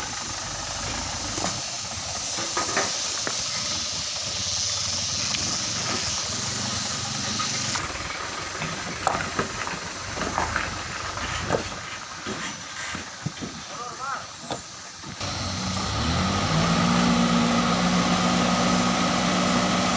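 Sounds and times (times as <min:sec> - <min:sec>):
steady hiss: 0:00.0 - 0:15.9.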